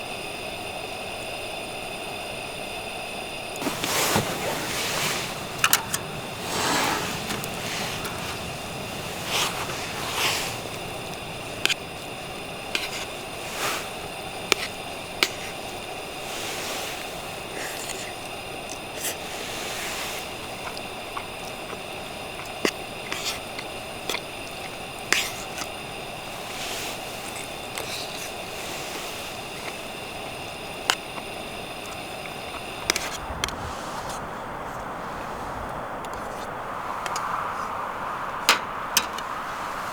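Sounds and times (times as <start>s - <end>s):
wood fire crackling: 3.5s - 39.9s
fire popping: 3.6s - 35.0s.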